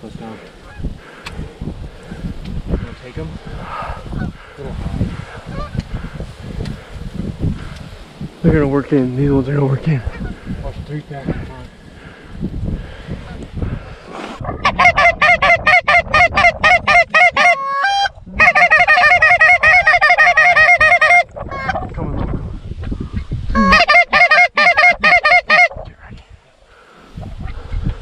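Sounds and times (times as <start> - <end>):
low wind rumble: 0.0 - 28.0
goose call clucks and honks: 14.4 - 21.9, 23.6 - 26.1.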